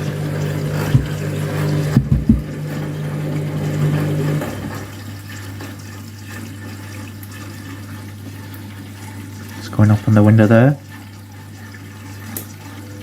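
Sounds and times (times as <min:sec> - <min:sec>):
washing machine motor hum: 0:00.0 - 0:13.0
water filling drum: 0:00.0 - 0:13.0
low thumps: 0:00.9 - 0:01.2, 0:01.9 - 0:02.5.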